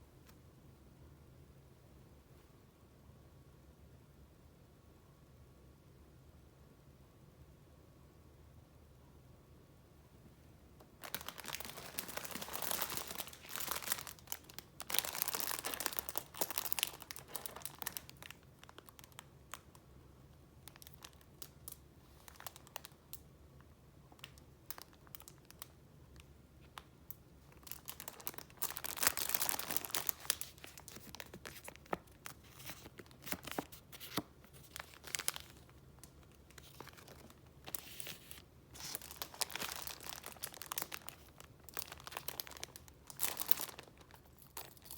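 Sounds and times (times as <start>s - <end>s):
paper rustling and crinkling: 11.0s - 18.3s, 27.7s - 44.9s.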